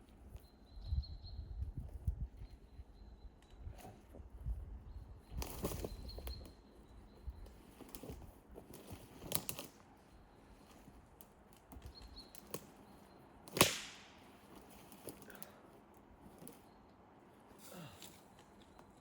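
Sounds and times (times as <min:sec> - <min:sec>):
twigs snapping: 0:08.7 - 0:09.8, 0:11.1 - 0:12.8, 0:13.4 - 0:15.6.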